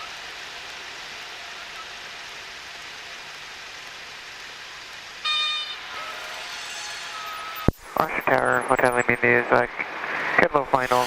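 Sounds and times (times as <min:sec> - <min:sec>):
airplane engine: 0:00.0 - 0:11.0
stall warning horn: 0:05.2 - 0:07.7.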